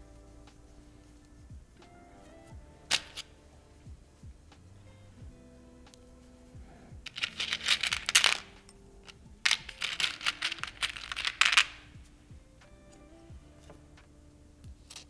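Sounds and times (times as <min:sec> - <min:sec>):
soft background music: 0:00.0 - 0:15.0
clicking and rustling of packaging: 0:02.8 - 0:03.4, 0:07.0 - 0:12.2.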